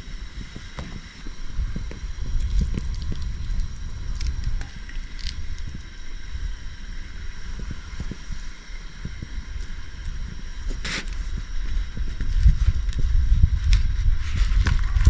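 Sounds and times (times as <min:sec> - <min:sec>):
wind rumbling on microphone: 0:00.0 - 0:15.0
short hiss: 0:10.7 - 0:11.3.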